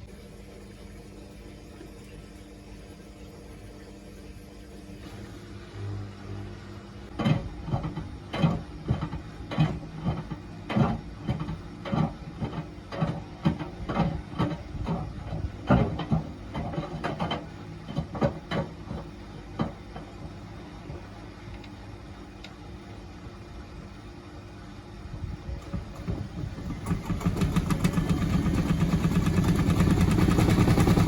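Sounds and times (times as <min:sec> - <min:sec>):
washing machine motor hum: 0:00.0 - 0:31.0
container thudding in washing machine: 0:07.1 - 0:20.4.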